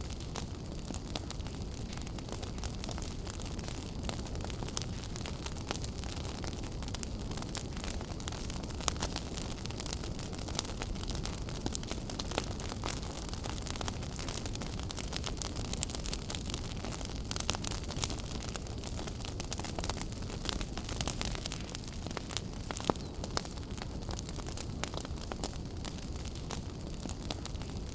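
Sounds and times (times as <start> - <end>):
wood fire crackling: 0.0 - 27.9.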